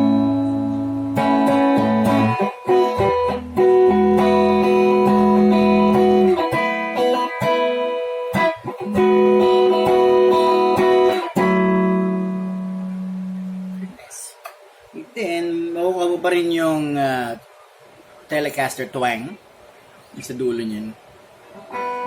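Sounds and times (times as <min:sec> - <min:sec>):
electric guitar clean chords: 0:00.0 - 0:14.0, 0:21.5 - 0:22.0.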